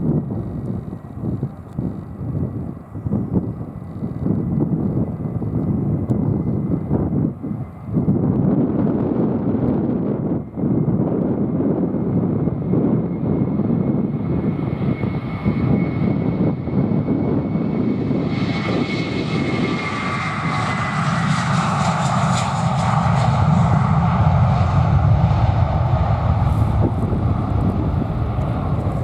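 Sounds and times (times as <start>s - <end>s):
jet engines at high power: 0.0s - 29.0s
wind rumble on microphone: 0.0s - 29.0s.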